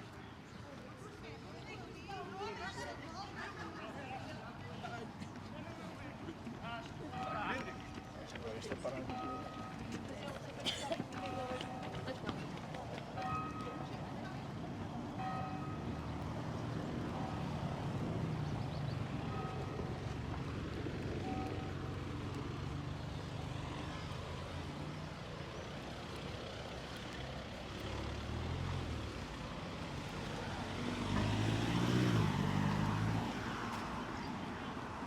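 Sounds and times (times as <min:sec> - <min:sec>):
vehicle engines running: 0:00.2 - 0:35.0
vehicle passing close: 0:27.6 - 0:34.0.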